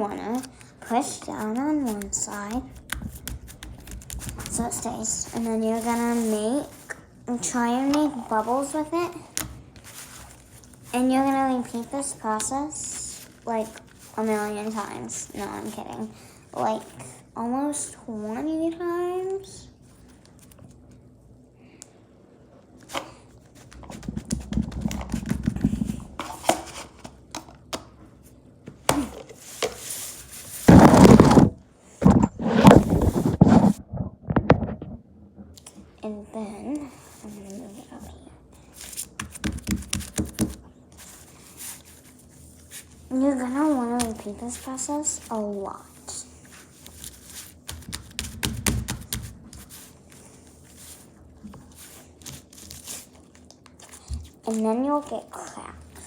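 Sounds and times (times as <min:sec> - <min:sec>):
handling noise: 0:29.5 - 0:35.0.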